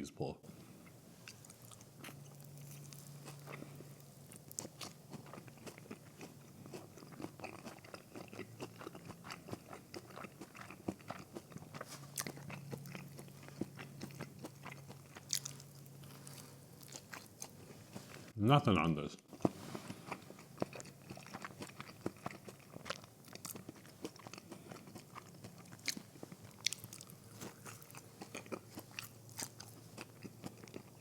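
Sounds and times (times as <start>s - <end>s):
crunchy biting and chewing: 0.8s - 18.3s, 19.3s - 31.0s.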